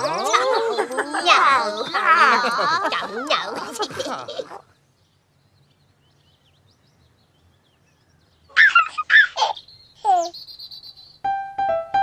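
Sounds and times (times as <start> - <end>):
bird chirping calls: 4.6 - 11.4.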